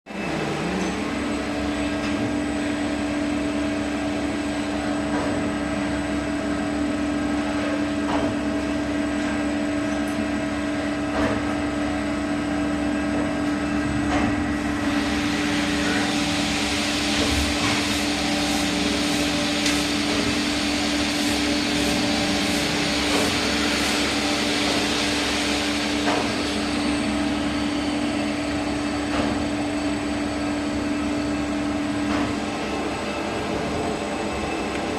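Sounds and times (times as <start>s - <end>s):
lathe humming: 0.1s - 3.2s, 14.6s - 29.0s.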